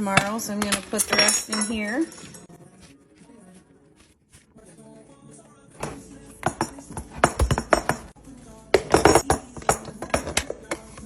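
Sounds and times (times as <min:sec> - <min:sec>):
utensils and dishes clinking: 0:00.0 - 0:02.5, 0:05.8 - 0:11.0.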